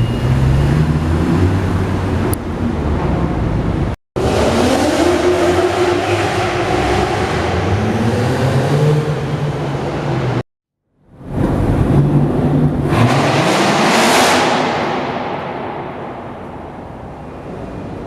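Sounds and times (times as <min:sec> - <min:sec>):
car engine revving: 0:04.2 - 0:10.4, 0:11.2 - 0:18.0.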